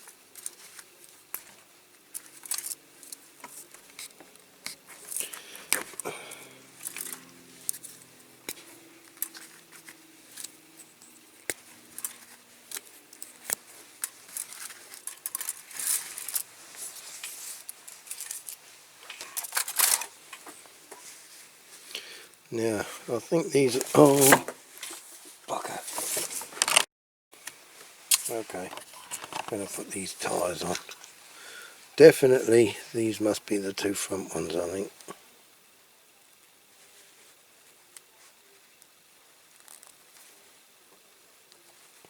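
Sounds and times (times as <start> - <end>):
toy wheels clicking and rustling: 0.4 - 6.1, 6.8 - 20.5, 28.1 - 31.1.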